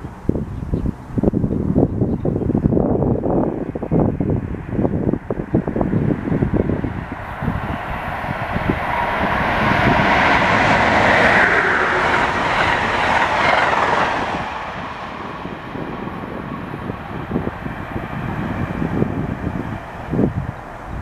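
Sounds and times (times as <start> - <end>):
train passing at speed: 3.4 - 21.0.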